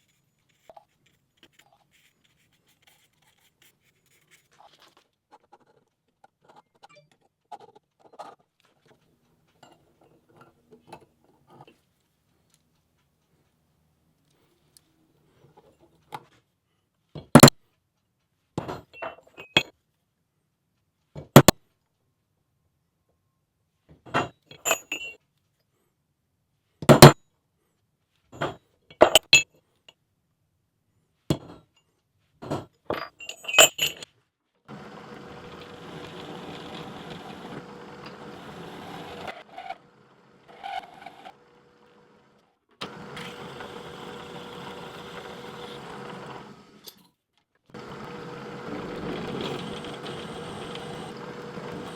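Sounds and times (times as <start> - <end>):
electric drill drilling metal: 34.7 - 46.9, 47.8 - 51.9.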